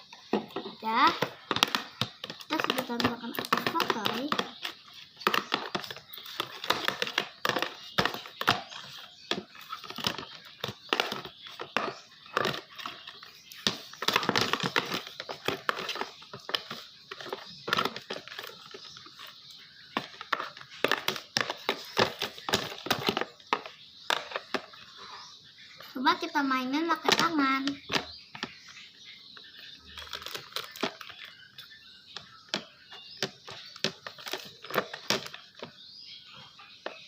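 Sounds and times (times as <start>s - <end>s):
slime squelching and crackling: 29.5s - 35.8s.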